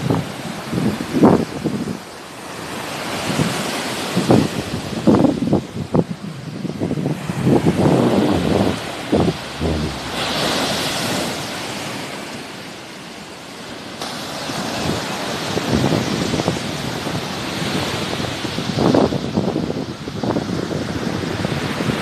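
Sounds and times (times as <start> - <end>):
sea waves washing on shore: 0.0 - 22.0
wind buffeting microphone: 4.2 - 11.6.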